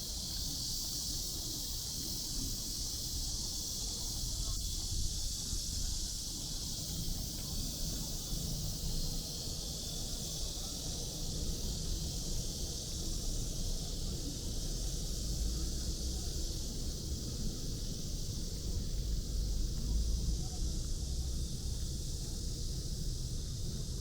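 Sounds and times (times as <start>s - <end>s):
high-pitched insect chorus: 0.0s - 24.0s
distant city traffic rumble: 9.6s - 24.0s.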